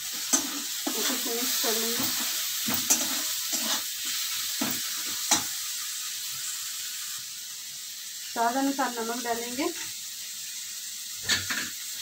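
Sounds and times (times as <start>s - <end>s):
metal spoon scraping a pan: 0.0s - 5.5s
masala sizzling in oil: 0.0s - 12.0s.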